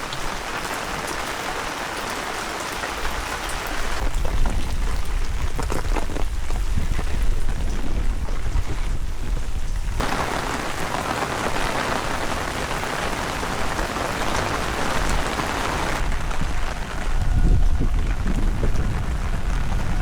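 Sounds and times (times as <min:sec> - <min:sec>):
wind rumbling on microphone: 0:03.8 - 0:20.0
heavy rain hissing: 0:09.2 - 0:20.0.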